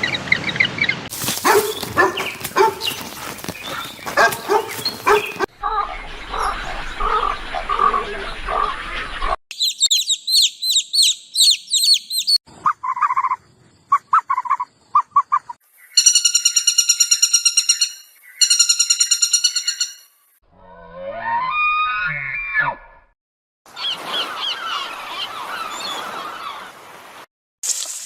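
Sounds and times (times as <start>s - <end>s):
high animal chirps: 9.5s - 20.0s.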